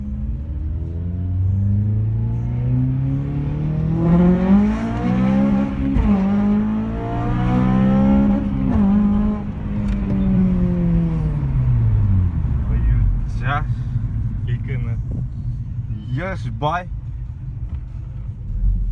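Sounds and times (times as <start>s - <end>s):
car engine revving hard: 1.2s - 15.0s.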